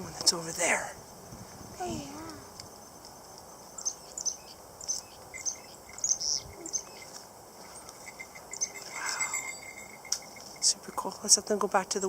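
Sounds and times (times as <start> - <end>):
small birds chirping high: 3.5 - 10.5.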